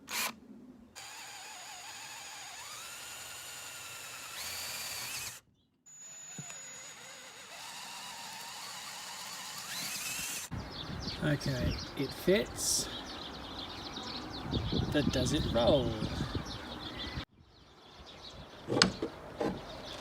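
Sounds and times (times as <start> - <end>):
power drill motor whine: 0.1 - 0.3, 1.0 - 10.5.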